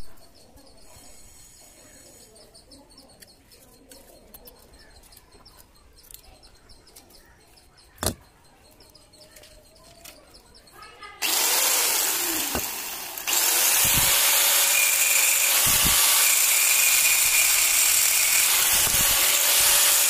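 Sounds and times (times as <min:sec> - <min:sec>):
small birds chirping: 0:00.0 - 0:14.1.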